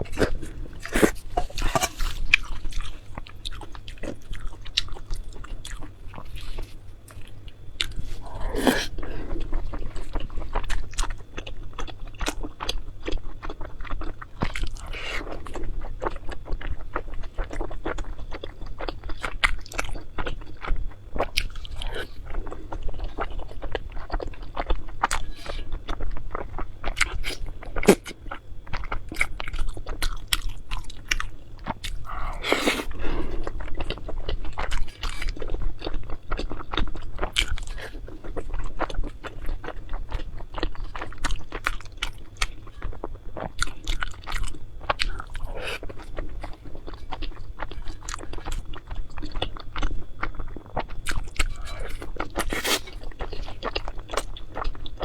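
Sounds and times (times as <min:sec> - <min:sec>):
close chewing and crunching: 0:00.0 - 0:55.0.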